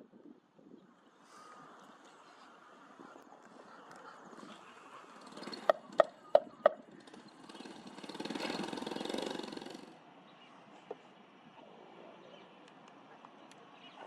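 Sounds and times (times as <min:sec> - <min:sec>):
motor vehicle passing: 0:02.7 - 0:10.2.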